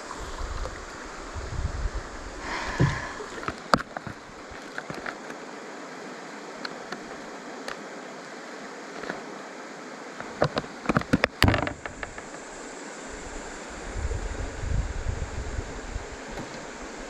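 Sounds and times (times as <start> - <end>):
wind buffeting microphone: 0.0 - 3.5, 13.2 - 16.4
river water rushing: 0.0 - 14.0
sharp knocks and clatters: 10.2 - 12.4.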